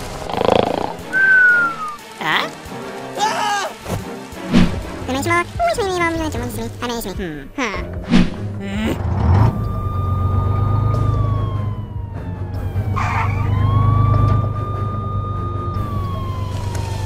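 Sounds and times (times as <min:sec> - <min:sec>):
fire engine siren wailing: 0:01.1 - 0:02.1, 0:09.3 - 0:17.0.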